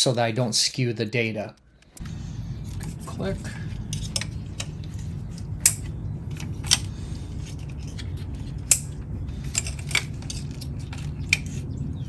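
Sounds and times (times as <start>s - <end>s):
steady low hum: 0.0s - 12.0s
metallic clicks of tools: 5.6s - 5.9s, 8.7s - 11.5s.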